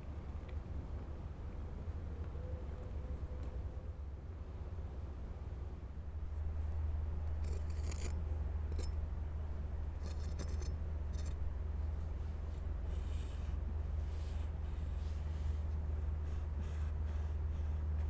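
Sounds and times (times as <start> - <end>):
short crisp scraping sounds: 7.4 - 8.2.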